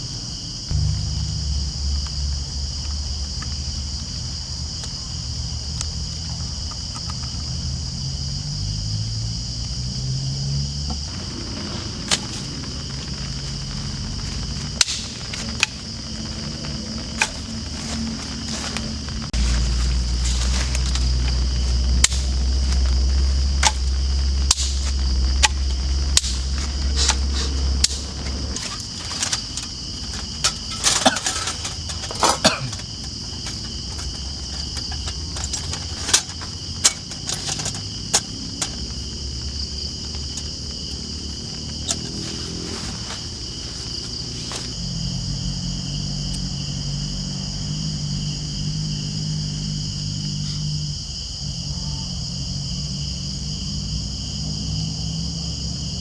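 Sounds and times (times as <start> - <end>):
crickets and insects chirring: 0.0 - 56.0
low hum: 0.7 - 3.9, 11.1 - 40.6
sharp clicks and knocks: 17.1 - 44.8.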